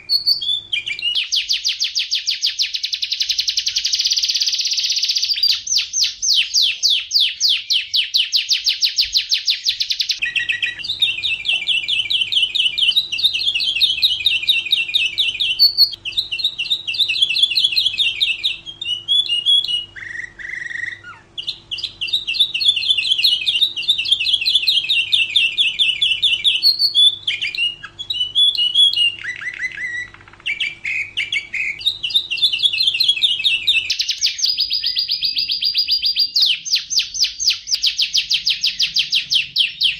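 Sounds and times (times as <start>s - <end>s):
canary singing trills: 0.0s - 39.9s
faint steady hum: 8.9s - 39.9s.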